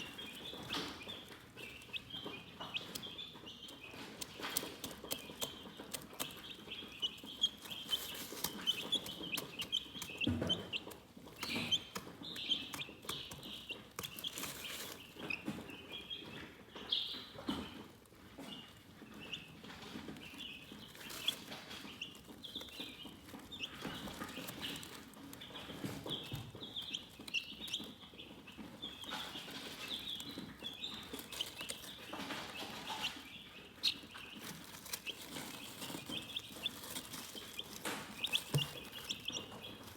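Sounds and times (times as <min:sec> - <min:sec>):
chicks chirping: 0:00.0 - 0:39.9
sharp clicks and taps: 0:00.6 - 0:15.6.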